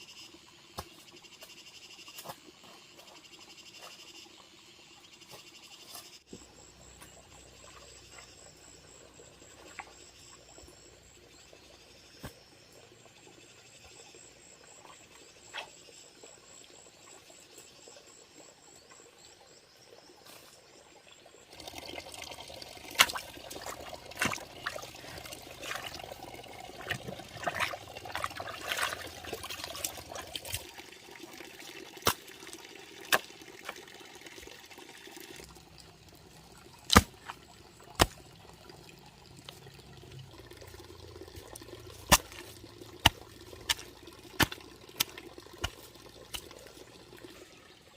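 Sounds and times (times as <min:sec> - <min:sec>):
insects chirring: 0:00.0 - 0:30.8
water running and splashing: 0:21.4 - 0:47.9.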